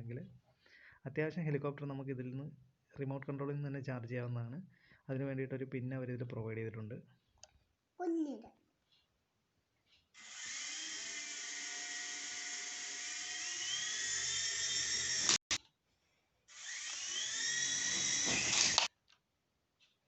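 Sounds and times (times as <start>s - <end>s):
toy helicopter motors whining: 10.2s - 15.6s, 16.5s - 18.9s.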